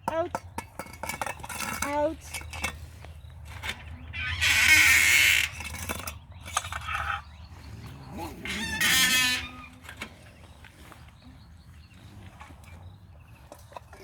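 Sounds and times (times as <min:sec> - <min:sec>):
harsh raspy animal calls: 0:04.1 - 0:05.8, 0:06.7 - 0:10.0.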